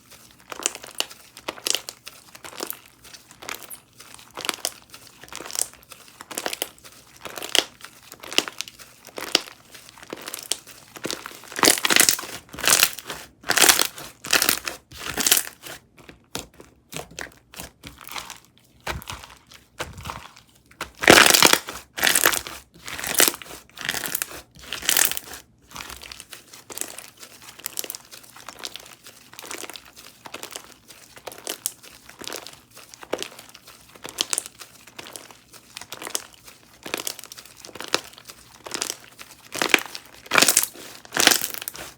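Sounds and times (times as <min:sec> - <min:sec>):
slime squishing by hand: 0:00.0 - 0:41.9.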